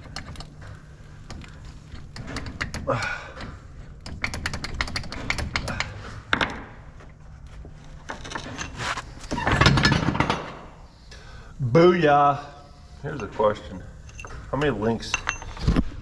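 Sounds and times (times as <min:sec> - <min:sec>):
metal chain rattling clatter: 0:13.2 - 0:15.8.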